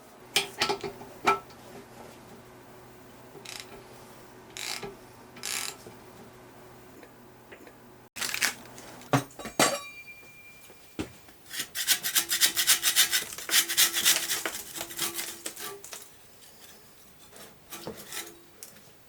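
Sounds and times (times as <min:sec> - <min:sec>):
scraper scraping sealant off metal: 0:11.5 - 0:15.9.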